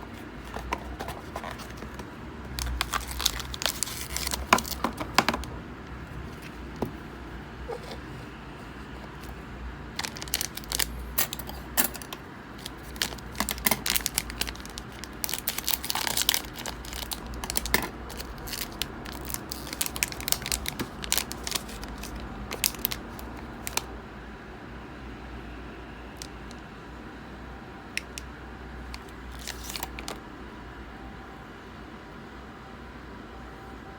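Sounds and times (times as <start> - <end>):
card packs clicking and crinkling: 0.0 - 7.0, 9.0 - 23.9, 28.9 - 30.2.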